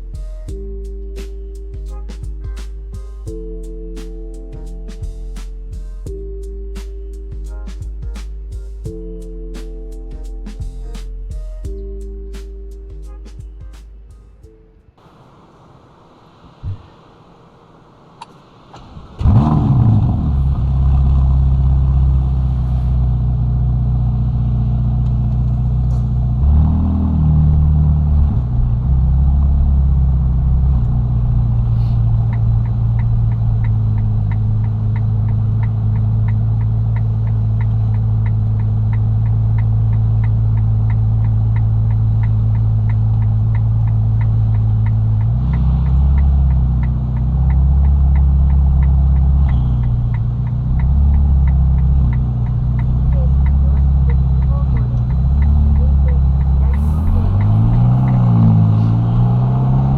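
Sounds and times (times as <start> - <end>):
car engine starting and idling: 15.0 - 59.9
fast even ticking: 32.0 - 59.9.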